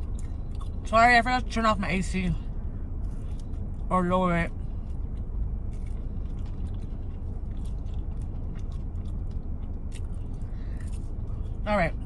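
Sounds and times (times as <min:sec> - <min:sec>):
chewing and crunching: 0:00.0 - 0:01.6, 0:02.4 - 0:12.0
car air conditioning rush: 0:00.0 - 0:12.0.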